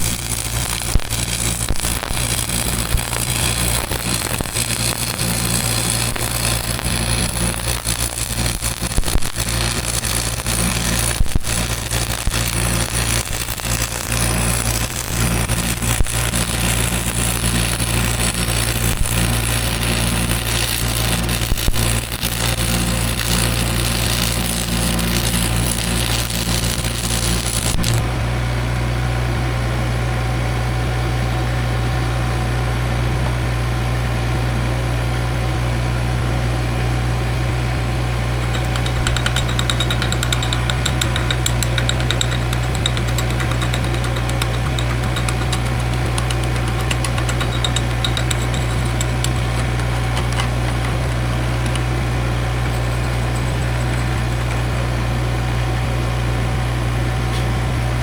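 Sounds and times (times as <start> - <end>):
welding arc crackling: 0.0 - 28.1, 38.0 - 55.7.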